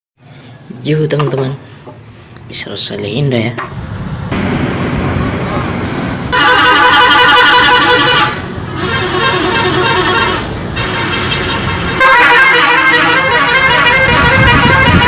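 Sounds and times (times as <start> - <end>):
horn blasts wavering: 6.3 - 15.0.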